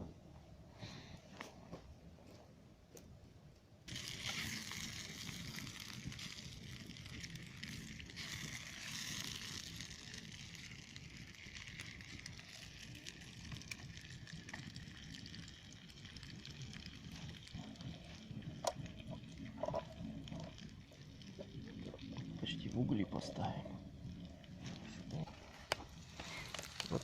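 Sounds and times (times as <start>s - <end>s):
sausages sizzling in a pan: 3.9s - 22.6s, 25.0s - 27.0s
burning wood crackling: 3.9s - 27.0s.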